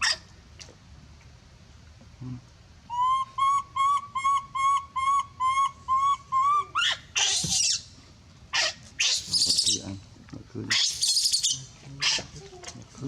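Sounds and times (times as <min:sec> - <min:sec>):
loud harsh animal scream: 0:06.4 - 0:07.8, 0:08.6 - 0:09.8, 0:10.7 - 0:12.2.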